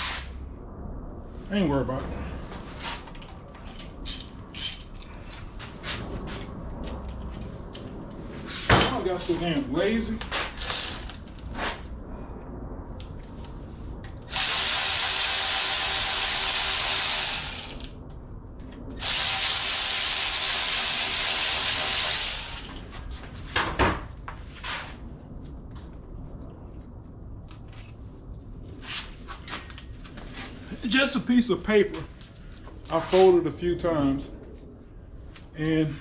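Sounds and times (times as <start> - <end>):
power tool running: 14.3 - 17.9, 19.0 - 22.8.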